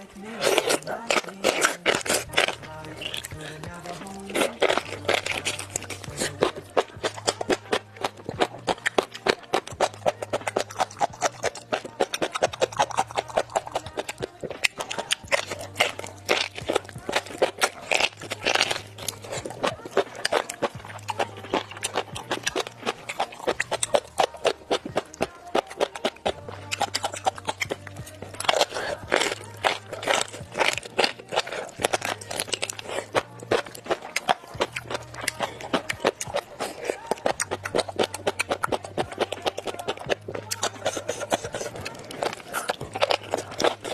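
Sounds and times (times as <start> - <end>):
background music: 0.0 - 43.9
crisp crunching chewing: 0.0 - 43.9.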